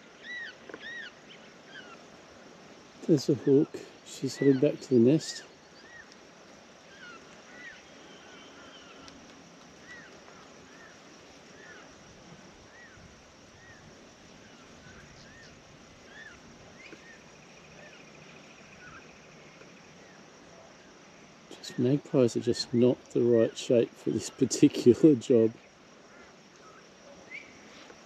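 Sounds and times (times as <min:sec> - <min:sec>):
bird chirping: 0:03.1 - 0:06.1, 0:14.4 - 0:20.2.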